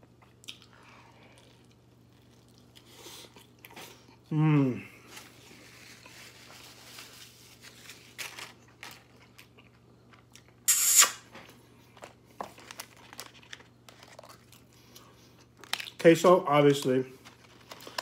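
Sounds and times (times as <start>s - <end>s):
quiet chewing: 0.0s - 4.3s, 13.9s - 16.0s
paper and foil wrapper crinkling: 1.5s - 2.9s, 5.0s - 10.3s, 11.8s - 18.0s.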